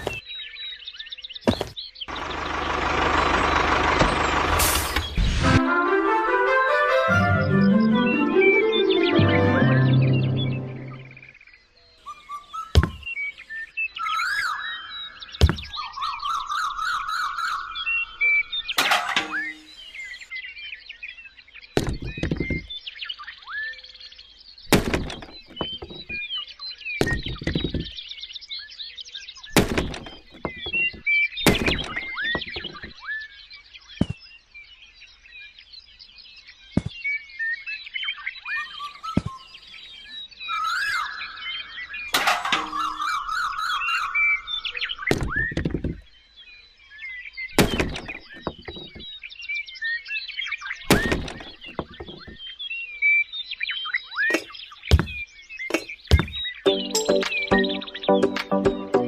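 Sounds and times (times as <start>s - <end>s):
irregular knocks and thuds: 0.0s - 0.2s, 1.5s - 1.8s, 12.8s - 13.2s, 15.4s - 15.8s, 21.8s - 22.7s, 24.7s - 26.2s, 27.0s - 28.0s, 29.6s - 33.0s, 34.0s - 34.2s, 36.8s - 37.0s, 45.1s - 46.1s, 47.6s - 49.2s, 50.9s - 52.4s, 54.3s - 56.6s.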